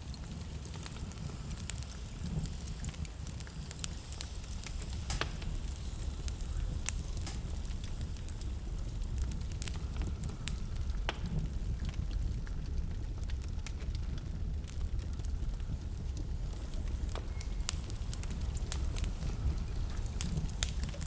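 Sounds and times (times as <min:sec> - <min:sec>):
fire crackling in fireplace: 0:00.0 - 0:21.0
flames rumbling: 0:00.0 - 0:21.0.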